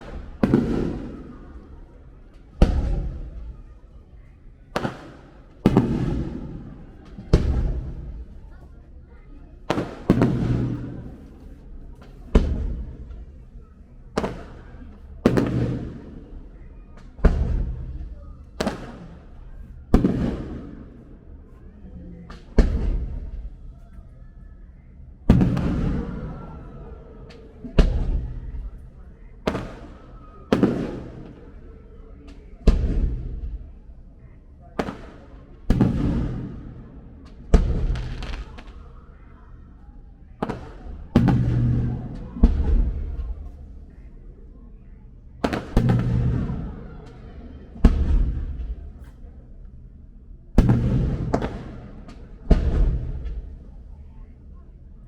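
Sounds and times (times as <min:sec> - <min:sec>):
fireworks bursting with bangs: 0:00.1 - 0:01.2, 0:02.6 - 0:03.5, 0:04.8 - 0:08.3, 0:09.7 - 0:13.2, 0:14.2 - 0:14.6, 0:15.2 - 0:16.2, 0:17.2 - 0:18.0, 0:18.6 - 0:19.2, 0:19.9 - 0:20.9, 0:25.3 - 0:26.2, 0:29.5 - 0:31.4, 0:32.7 - 0:33.5, 0:34.8 - 0:36.8, 0:37.6 - 0:38.8, 0:40.4 - 0:43.5, 0:45.4 - 0:46.6, 0:47.8 - 0:48.8, 0:50.6 - 0:53.6.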